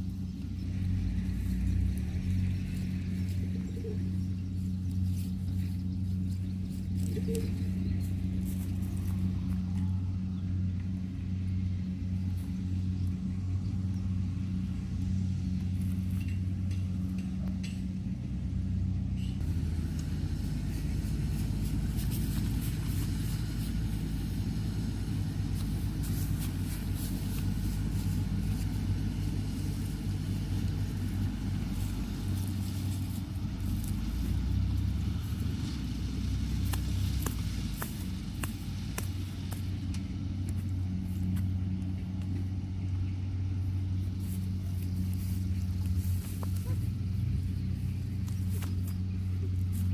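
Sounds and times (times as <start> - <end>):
harvester engine droning: 0.0 - 49.9.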